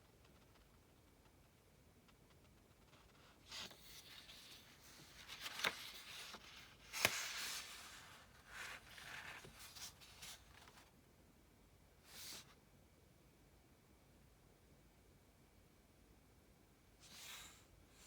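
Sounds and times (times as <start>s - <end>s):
paper rustling: 2.8s - 10.9s.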